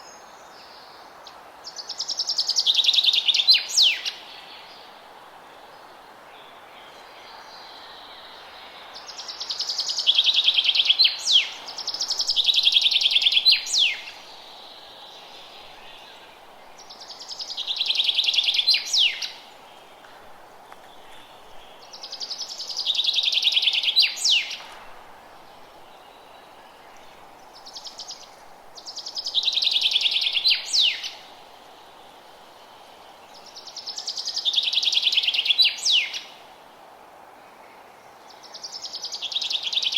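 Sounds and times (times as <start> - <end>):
soft background hiss: 0.0 - 39.9
songbird trilling song: 1.7 - 4.8, 6.4 - 19.5, 20.9 - 24.7, 25.5 - 32.0, 33.2 - 36.4.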